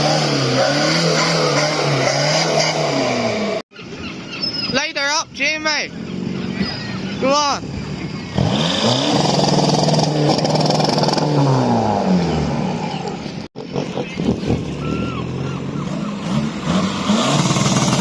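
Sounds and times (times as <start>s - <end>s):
car engine revving hard: 0.0s - 3.6s, 8.3s - 12.9s, 15.8s - 18.0s.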